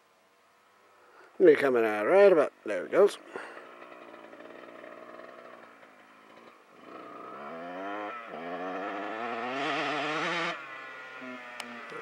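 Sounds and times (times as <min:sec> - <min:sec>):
dirt bike engine accelerating: 0:03.3 - 0:12.0.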